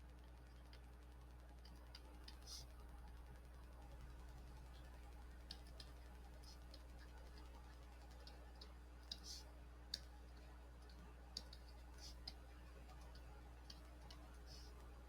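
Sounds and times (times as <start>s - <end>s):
low steady hum: 0.0s - 15.0s
faint clicks: 4.6s - 14.9s.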